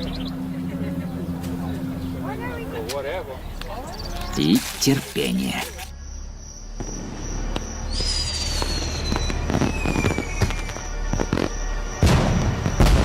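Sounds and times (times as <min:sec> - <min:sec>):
whistling firework shells: 0:07.9 - 0:13.0
firework pops: 0:08.0 - 0:13.0
loud firework bangs: 0:08.0 - 0:13.0.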